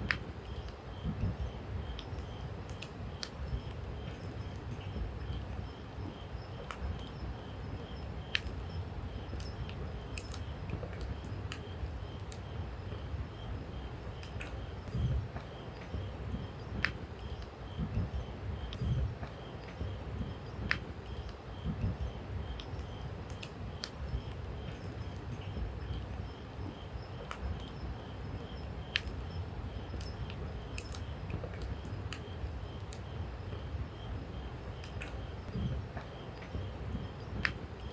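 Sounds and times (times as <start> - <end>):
low steady fire rumble: 0.0 - 37.9
campfire crackling and popping: 18.7 - 21.3, 29.9 - 33.1.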